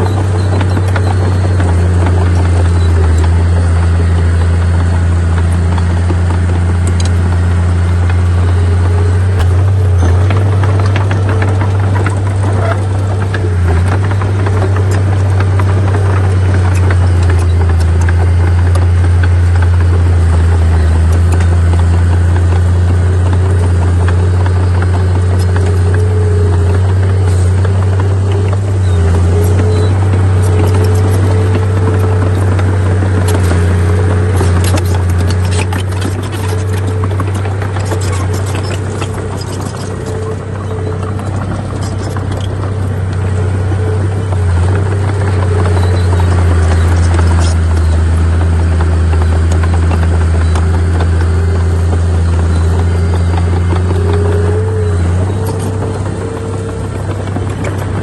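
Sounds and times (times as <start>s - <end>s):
heavy diesel machine engine drone: 0.0s - 58.0s.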